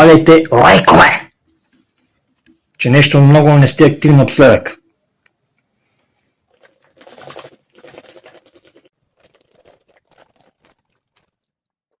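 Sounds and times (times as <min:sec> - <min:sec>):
person chewing crunchy food: 0:06.4 - 0:11.7.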